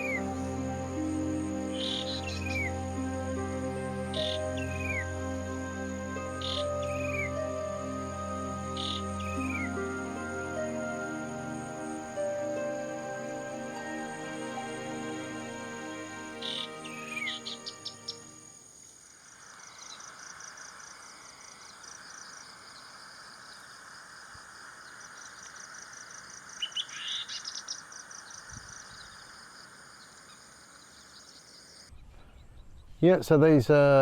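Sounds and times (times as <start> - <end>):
background music: 0.0 - 18.6
insect hiss with trills: 0.0 - 32.0.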